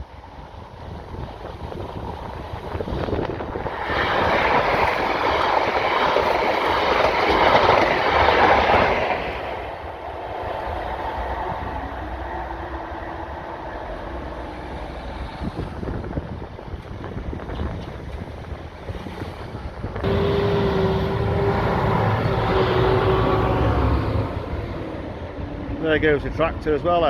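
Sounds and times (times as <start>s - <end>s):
train rumble: 0.0s - 27.0s.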